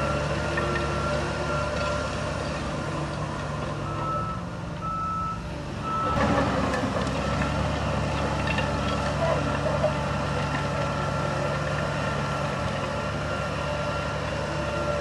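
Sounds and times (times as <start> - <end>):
diesel engine running: 0.0 - 15.0
reversing alarm beeping: 3.8 - 6.2.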